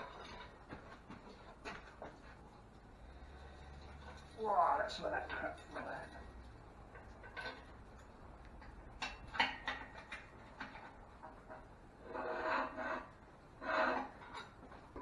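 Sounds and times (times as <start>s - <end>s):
knocks and rattles on metal: 5.2s - 11.7s
rasping metal scrapes: 12.0s - 14.7s.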